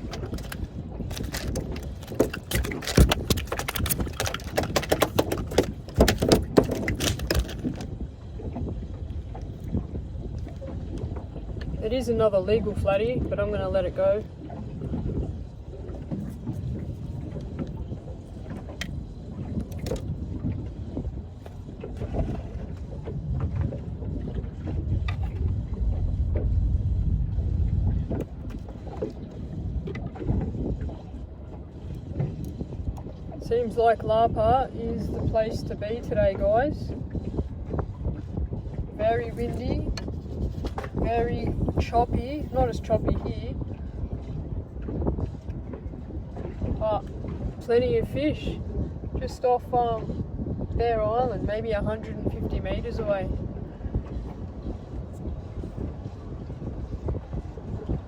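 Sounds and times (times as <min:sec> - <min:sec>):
low rumble of wind and water: 0:00.0 - 0:58.0
knocks clicks and rattles: 0:00.1 - 0:07.9.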